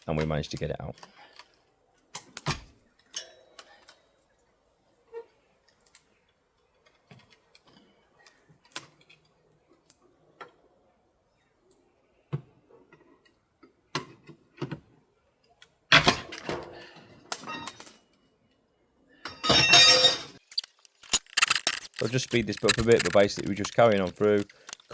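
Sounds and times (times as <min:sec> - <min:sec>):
broken glass and tools clinking: 0:19.4 - 0:24.9.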